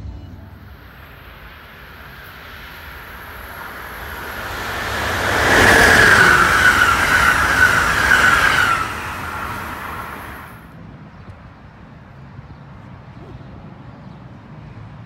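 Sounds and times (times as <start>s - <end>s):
train whine: 0.0s - 10.7s
train passing rush of noise: 0.2s - 12.3s.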